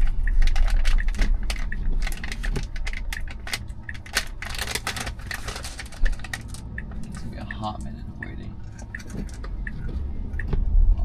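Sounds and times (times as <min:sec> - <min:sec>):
low rumble inside car: 0:00.0 - 0:11.0
light clicking and ticking: 0:05.9 - 0:10.6.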